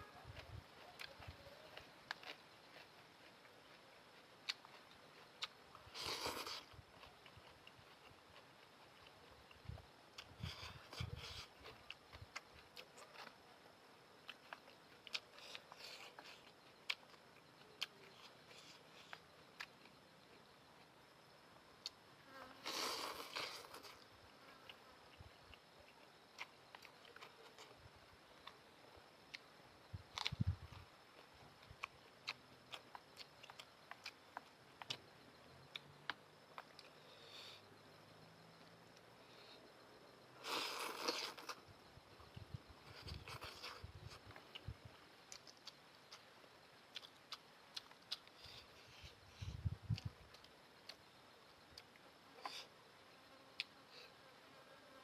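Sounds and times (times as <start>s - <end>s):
wet chewing clicks and smacks: 0.4s - 13.4s, 14.2s - 20.0s, 30.1s - 37.0s, 42.3s - 49.1s, 49.9s - 51.0s.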